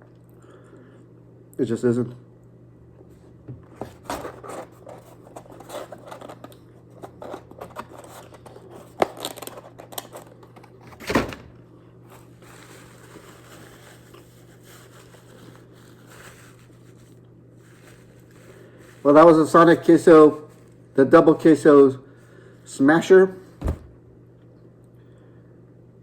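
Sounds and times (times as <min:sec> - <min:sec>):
rustling and crinkling handling: 0:03.5 - 0:20.8
thump: 0:23.6 - 0:24.0.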